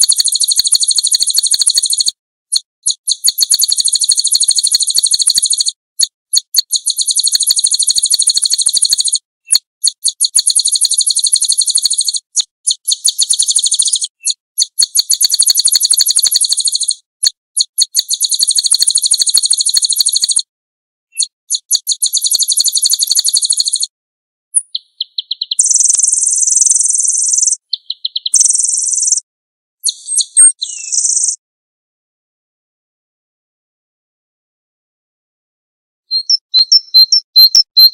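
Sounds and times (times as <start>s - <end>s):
songbirds trilling: 24.7s - 29.2s.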